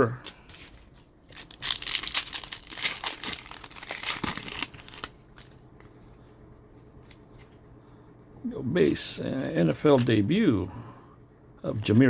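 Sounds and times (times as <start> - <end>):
foil wrapper tearing and crinkling: 1.3 - 5.6.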